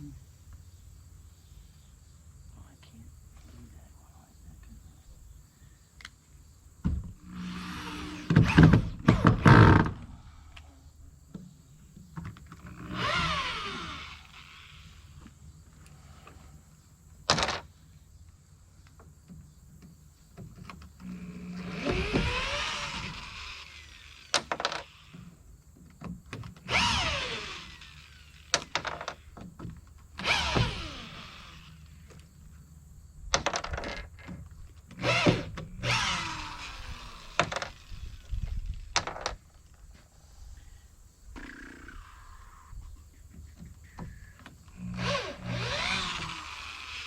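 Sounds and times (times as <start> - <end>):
sharp knocks on wood: 6.8 - 7.2
wooden boards creaking and scraping: 6.8 - 10.2, 17.3 - 17.8, 19.0 - 23.5, 24.2 - 27.7, 28.5 - 32.3, 33.3 - 40.0, 43.1 - 46.8.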